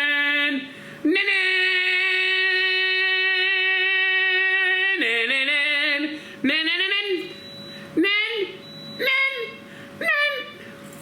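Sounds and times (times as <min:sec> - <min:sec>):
man singing a long note: 0:00.0 - 0:07.3.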